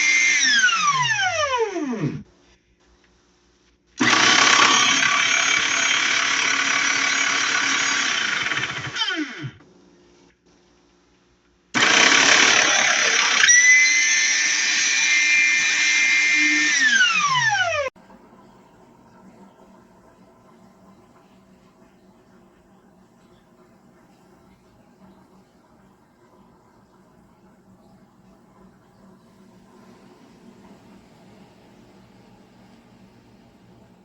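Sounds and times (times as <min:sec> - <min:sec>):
electric meat grinder motor whirring: 0:00.0 - 0:02.2, 0:04.0 - 0:09.6, 0:11.8 - 0:17.9.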